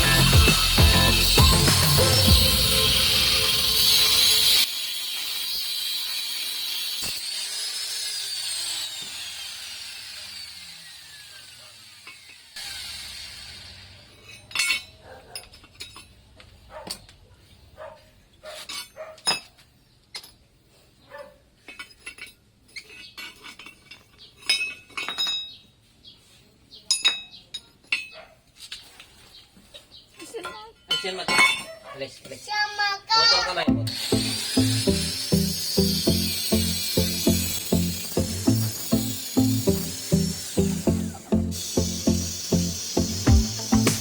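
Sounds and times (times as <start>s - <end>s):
falling pitch sweeps: 0.0s - 4.6s
metal tools clinking: 14.1s - 17.2s, 21.6s - 25.7s, 30.2s - 31.8s.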